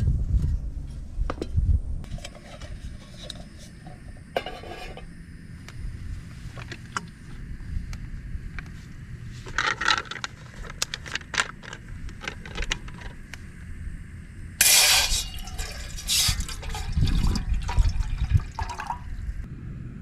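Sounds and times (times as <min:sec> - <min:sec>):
water poured into pot: 0:14.6 - 0:19.2.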